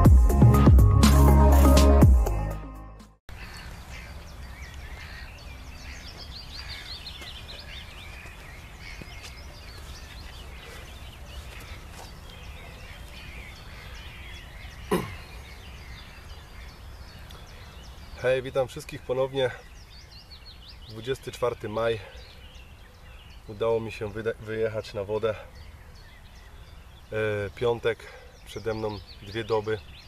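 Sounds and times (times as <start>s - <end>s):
electronic music: 0.0s - 3.2s
songbirds chirping and singing: 3.3s - 30.0s.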